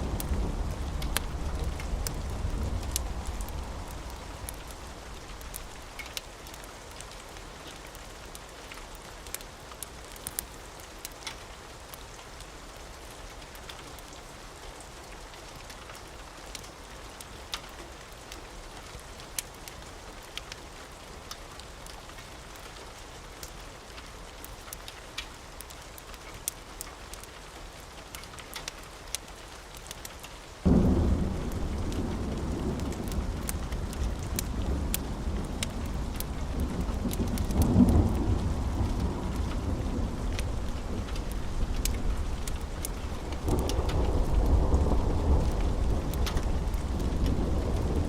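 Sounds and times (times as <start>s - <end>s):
thunder rumbling: 0.0s - 6.0s, 30.6s - 48.0s
rain falling: 0.0s - 48.0s.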